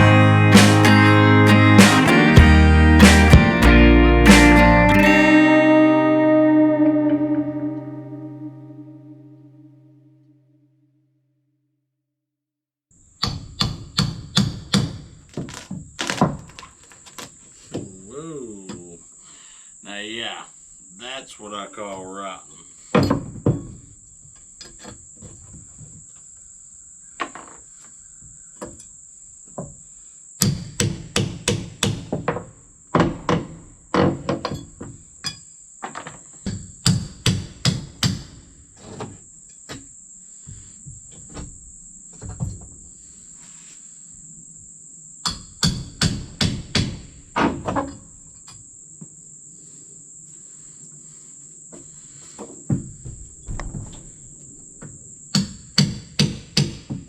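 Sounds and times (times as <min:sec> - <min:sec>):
crickets chirring: 0:39.1 - 0:46.0, 0:47.9 - 0:56.3.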